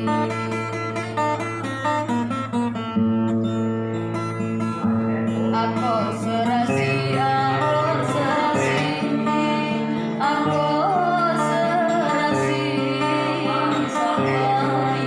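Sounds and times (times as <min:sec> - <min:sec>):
acoustic guitar: 0:00.0 - 0:15.0
woman singing: 0:05.5 - 0:15.0.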